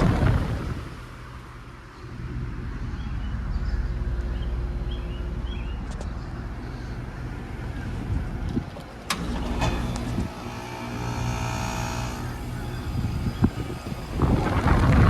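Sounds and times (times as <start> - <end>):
condenser fan noise: 0.0 - 15.0
air conditioner compressor hum: 4.0 - 15.0.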